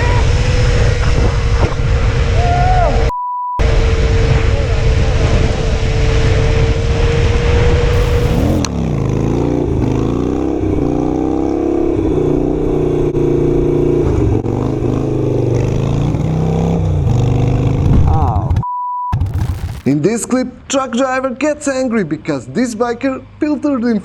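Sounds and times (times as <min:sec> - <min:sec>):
motorcycle engine running: 0:07.9 - 0:09.6.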